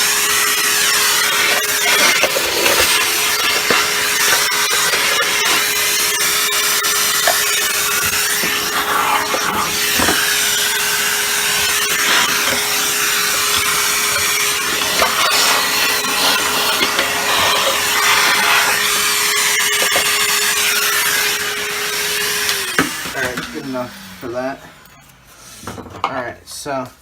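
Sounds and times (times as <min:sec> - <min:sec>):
vacuum cleaner running: 0:00.0 - 0:25.4
brush scrubbing and rubbing: 0:08.0 - 0:20.6.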